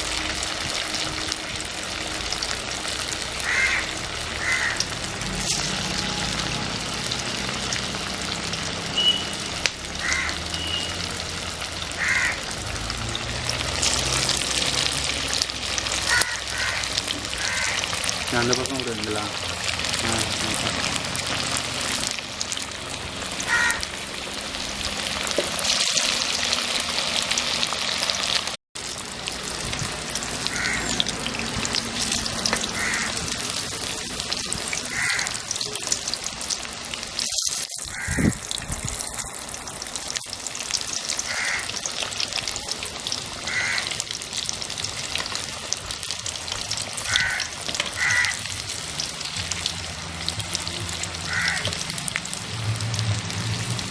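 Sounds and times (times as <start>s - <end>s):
food deep-frying in oil: 0.0s - 53.9s
crow cawing: 3.4s - 4.9s, 10.0s - 10.5s, 11.9s - 12.5s, 16.0s - 18.0s, 23.4s - 23.9s, 30.5s - 31.1s, 32.6s - 33.3s, 34.9s - 35.6s, 37.9s - 38.3s, 41.2s - 41.9s, 43.4s - 44.0s, 47.0s - 48.5s, 51.2s - 51.8s.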